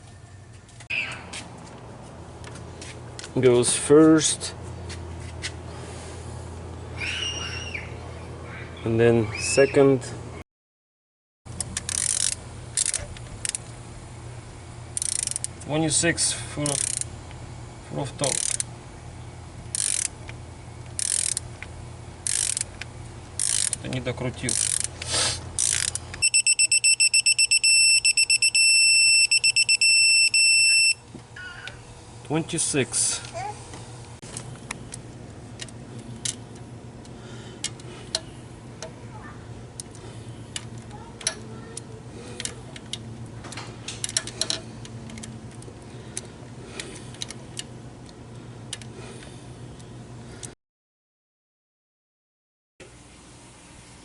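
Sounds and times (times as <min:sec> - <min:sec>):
steady low hum: 0:00.0 - 0:10.4, 0:11.5 - 0:50.6
ratchet clicking: 0:11.5 - 0:13.7, 0:14.9 - 0:15.6, 0:16.6 - 0:17.1, 0:18.2 - 0:18.7, 0:19.7 - 0:21.5, 0:22.2 - 0:25.0, 0:25.6 - 0:29.8
torque wrench beeping: 0:15.0 - 0:15.5, 0:16.6 - 0:17.1, 0:19.7 - 0:20.1, 0:22.2 - 0:22.7, 0:25.6 - 0:31.0
hand tools clicking on metal: 0:22.2 - 0:26.3, 0:39.7 - 0:47.7.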